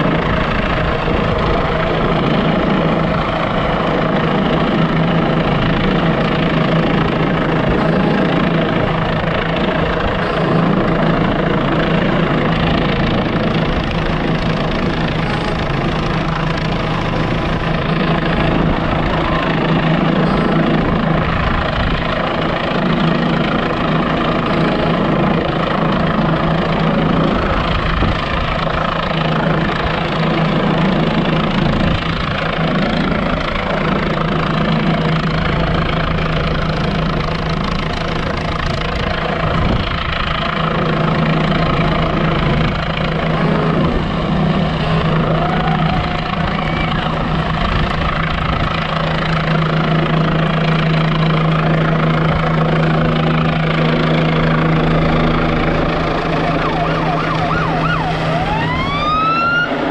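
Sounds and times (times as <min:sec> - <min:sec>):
helicopter hovering: 0:00.0 - 0:59.9.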